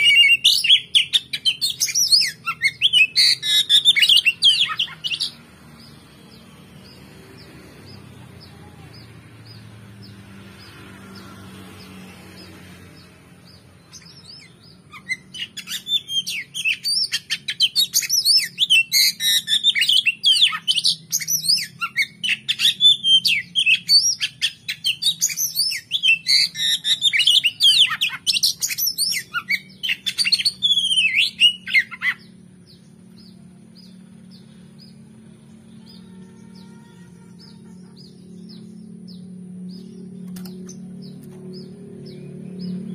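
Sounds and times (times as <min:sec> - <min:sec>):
bird singing loud whistles: 0:00.0 - 0:05.4, 0:13.9 - 0:32.3
steady low hum: 0:31.4 - 0:42.9.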